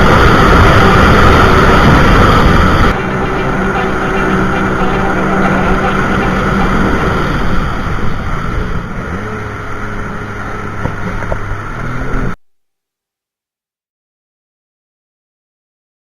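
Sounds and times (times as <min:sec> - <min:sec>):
jet ski engine: 0:00.0 - 0:12.4
water: 0:00.0 - 0:12.4
wind noise: 0:00.0 - 0:12.4.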